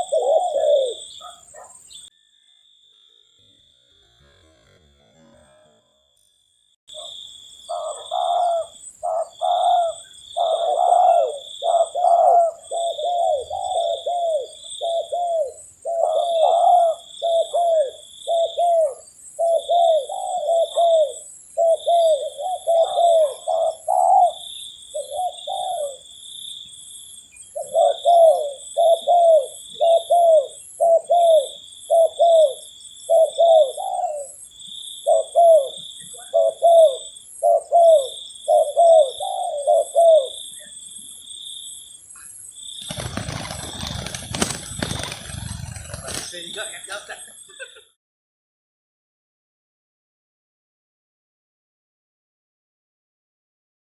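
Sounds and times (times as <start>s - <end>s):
doves cooing: 0.0s - 1.8s, 7.7s - 26.1s, 27.6s - 34.4s, 35.0s - 40.7s, 42.8s - 47.7s.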